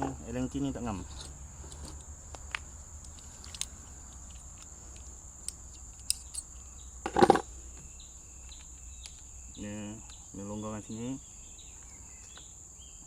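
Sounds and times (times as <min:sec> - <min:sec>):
high drone of insects: 0:00.0 - 0:13.0
metallic clicks of tools handled: 0:03.0 - 0:06.5
tools clattering: 0:07.1 - 0:07.4.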